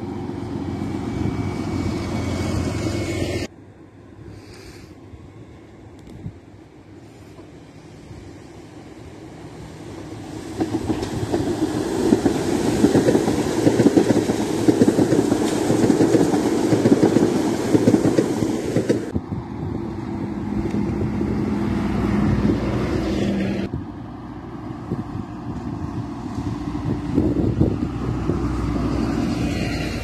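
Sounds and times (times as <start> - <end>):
bus approaching: 0.0 - 4.2, 5.0 - 30.0
train wheels rumbling on rails: 9.3 - 30.0.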